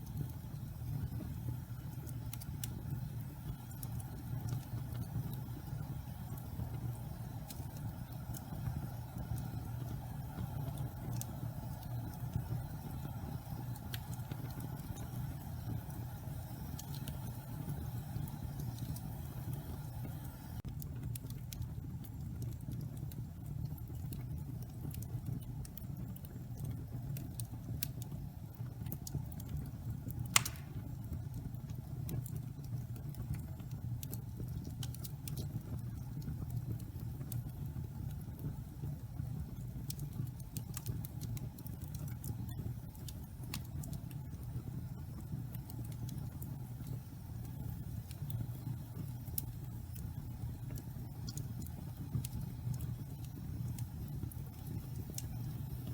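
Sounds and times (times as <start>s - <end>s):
fire crackling: 0.0s - 55.9s
fire roaring: 0.0s - 55.9s
loud wood pop: 30.4s - 30.8s.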